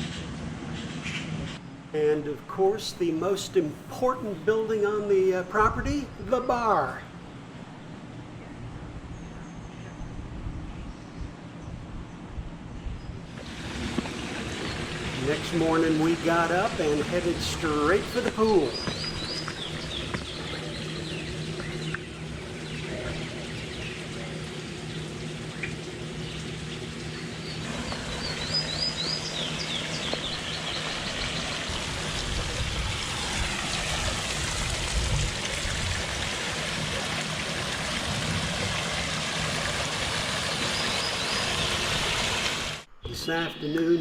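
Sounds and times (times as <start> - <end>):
birds chirping: 0.0 - 34.7, 36.4 - 44.0
low steady hum: 1.6 - 44.0
running water: 13.3 - 42.9.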